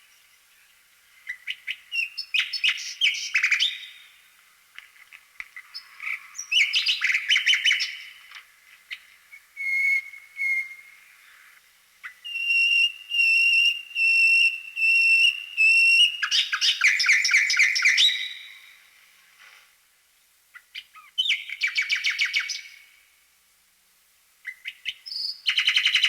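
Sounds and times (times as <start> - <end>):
bird singing trills and whistles: 1.2 - 4.0, 5.7 - 8.2, 8.9 - 11.0, 12.0 - 18.7, 20.6 - 22.8, 24.4 - 26.0.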